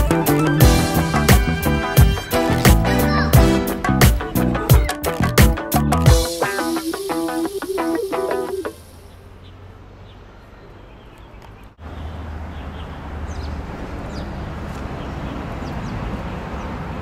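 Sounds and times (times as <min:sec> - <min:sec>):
small birds chirping: 0:06.4 - 0:16.8.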